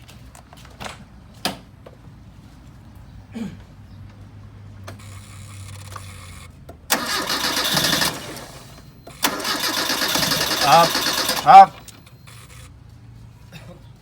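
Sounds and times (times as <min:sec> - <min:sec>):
car engine starter cranking: 0:04.9 - 0:12.7
car engine running: 0:05.7 - 0:12.6.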